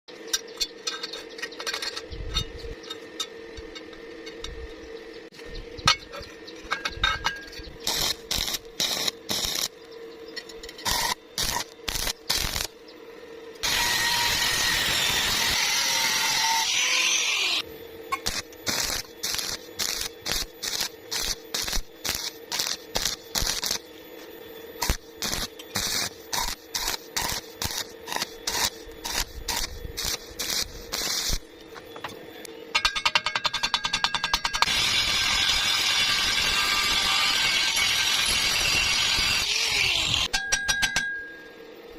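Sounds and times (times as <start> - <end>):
electrical hum: 0.1 - 33.7
electric welding arc bursts: 7.8 - 9.7, 10.8 - 12.8, 13.6 - 23.9, 24.8 - 31.5, 34.6 - 40.3.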